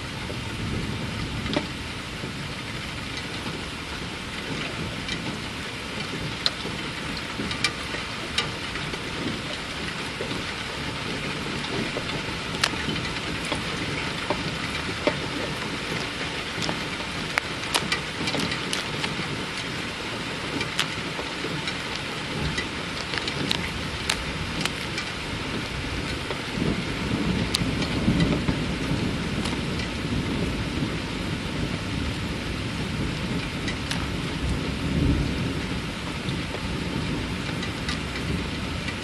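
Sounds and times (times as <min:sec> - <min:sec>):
low rumble of thunder: 0:00.0 - 0:39.0
raindrops ticking close by: 0:00.0 - 0:39.0
steady rain: 0:00.0 - 0:39.0.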